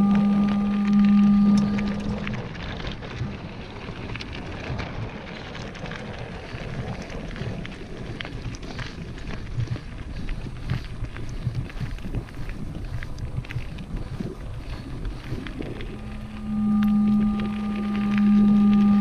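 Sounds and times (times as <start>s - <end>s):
loud steady whine: 0.0s - 4.4s, 10.1s - 19.0s
bike tyres rolling over dirt: 0.0s - 19.0s
wind on microphone: 0.0s - 19.0s
bike clicks and rattles: 2.0s - 16.1s.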